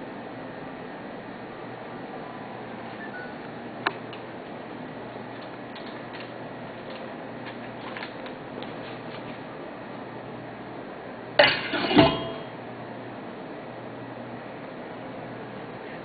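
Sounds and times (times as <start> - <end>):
metal parts clanking together: 11.4 - 12.4.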